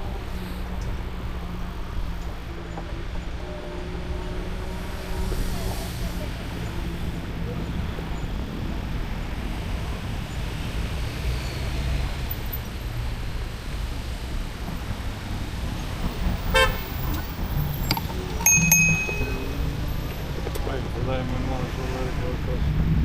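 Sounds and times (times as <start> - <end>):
horn toot: 16.5 - 16.9
high ringing tone: 18.4 - 19.8.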